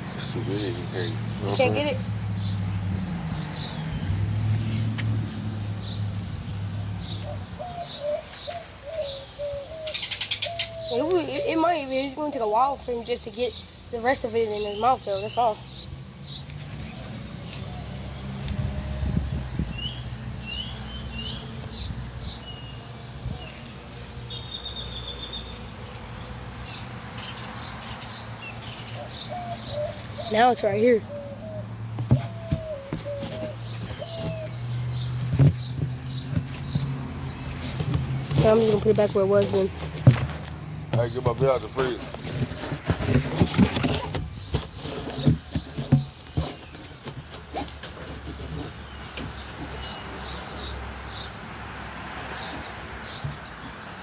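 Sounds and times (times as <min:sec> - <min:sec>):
small birds chirping: 0:00.0 - 0:54.0
rustling: 0:32.0 - 0:40.6, 0:41.4 - 0:48.8.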